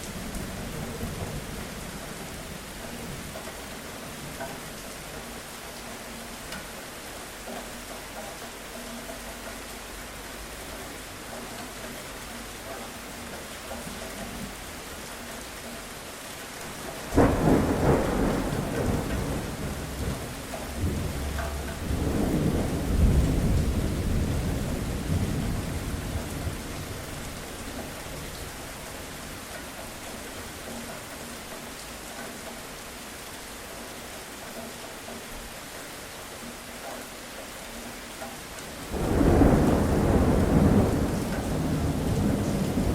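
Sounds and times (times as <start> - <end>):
steady rainfall: 0.0 - 42.9
thunder rumbling: 16.7 - 29.2, 38.8 - 42.9.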